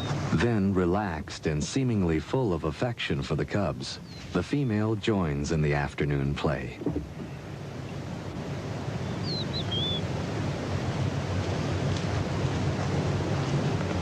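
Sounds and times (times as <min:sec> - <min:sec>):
rushing wind: 0:06.8 - 0:14.0
high wavering bird call: 0:09.2 - 0:10.0.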